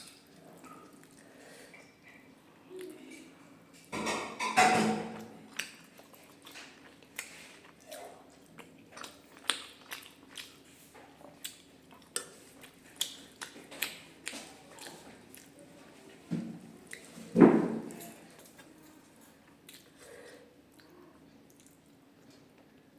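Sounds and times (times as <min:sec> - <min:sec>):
person chewing: 0:05.5 - 0:15.6, 0:19.6 - 0:20.1, 0:21.5 - 0:22.5.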